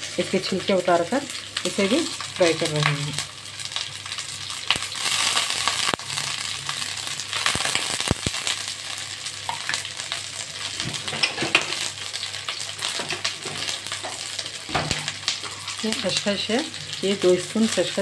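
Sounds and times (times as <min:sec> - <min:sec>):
oil sizzling in a pan: 0:00.0 - 0:18.0.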